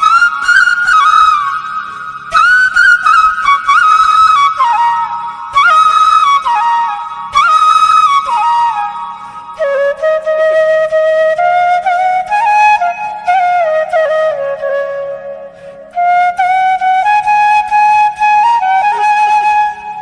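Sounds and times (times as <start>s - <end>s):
flute melody: 0.0s - 20.0s.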